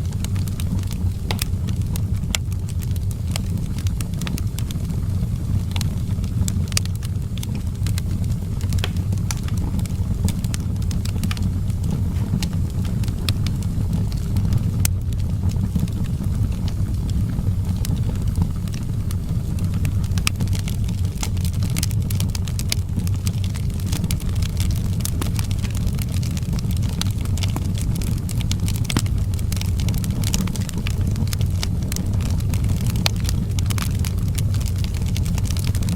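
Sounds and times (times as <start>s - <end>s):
firewood crackling and popping: 0.0s - 35.9s
low rumble of flame: 0.0s - 35.9s.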